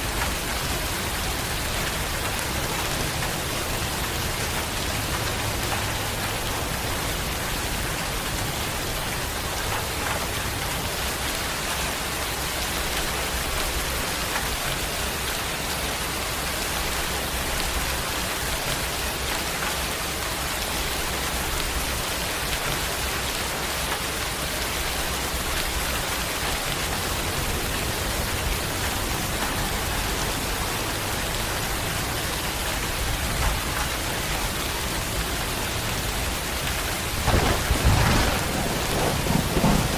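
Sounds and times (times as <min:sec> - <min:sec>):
rain pattering: 0:00.0 - 0:39.9
low rumble: 0:37.0 - 0:39.9.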